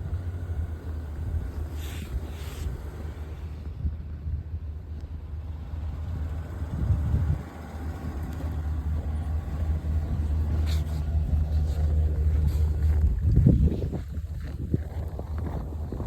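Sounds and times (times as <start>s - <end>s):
engine rumbling: 0.0s - 16.0s.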